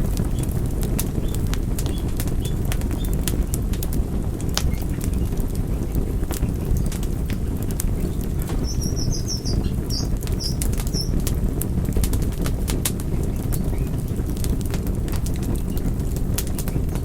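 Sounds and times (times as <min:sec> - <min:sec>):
low rumble: 0:00.0 - 0:17.0
wood fire crackling: 0:00.0 - 0:17.0
high chirps: 0:08.5 - 0:11.2.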